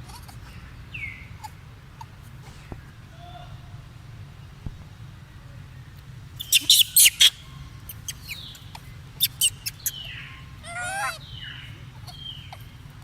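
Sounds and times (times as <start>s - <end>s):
monkey squeaking and chirping: 6.4s - 12.7s.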